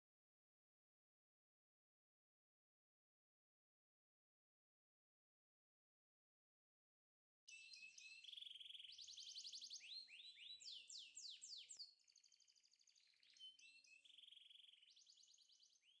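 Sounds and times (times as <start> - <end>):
bird song trills and chirps: 7.5 - 16.0.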